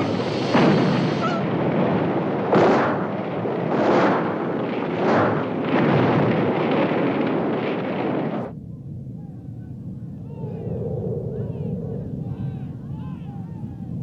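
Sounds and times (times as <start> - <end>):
gulls screeching: 0.0 - 2.3
fire explosions: 0.0 - 8.6
fire roaring: 0.0 - 8.6.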